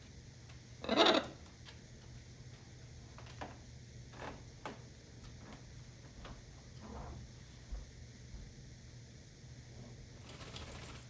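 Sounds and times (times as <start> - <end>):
parrots clicking and scratching: 10.2 - 11.0.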